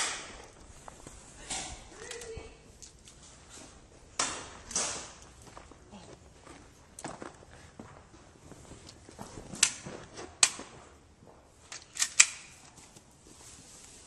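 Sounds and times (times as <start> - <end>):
airsoft pistol cracks: 12.0 - 12.5.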